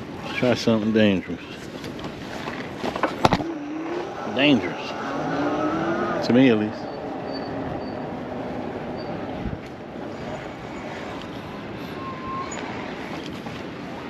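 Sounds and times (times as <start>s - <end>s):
tyres on pavement: 0.0s - 14.0s
wind on microphone: 6.9s - 14.0s.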